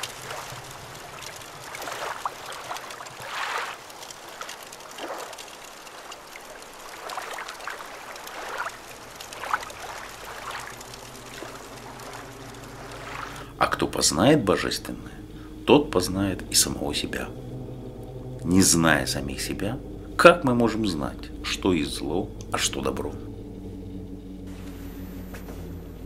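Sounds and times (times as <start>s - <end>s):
water washing over rocks: 0.0s - 17.2s.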